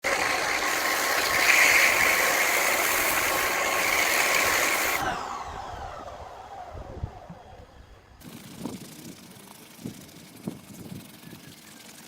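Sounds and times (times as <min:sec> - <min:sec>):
vacuum cleaner running: 0:00.0 - 0:09.5
vacuum motor winding down: 0:00.0 - 0:11.8.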